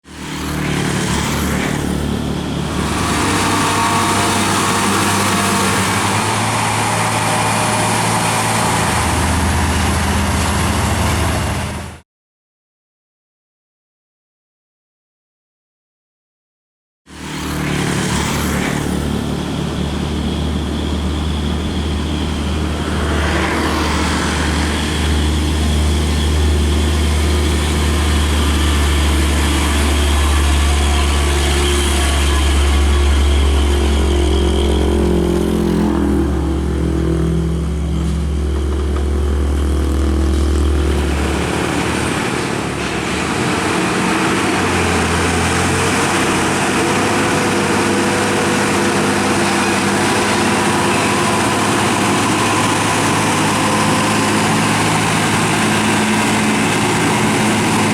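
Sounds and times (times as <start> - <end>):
diesel truck engines: 0.0 - 12.0, 17.1 - 57.9
road traffic: 0.0 - 12.0, 17.1 - 57.9
deep steady drone: 19.2 - 57.9.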